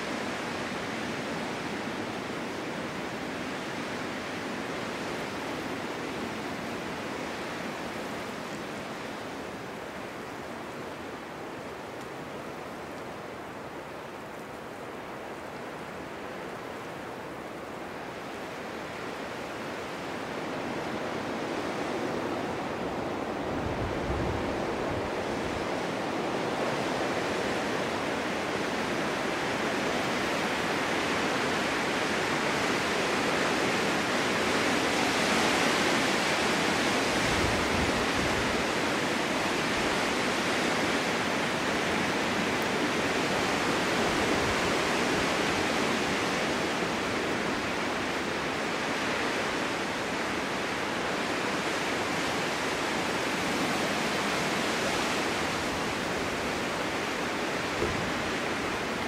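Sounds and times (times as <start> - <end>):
snowstorm wind blowing: 0.0 - 59.0
wind buffeting microphone: 20.7 - 29.5.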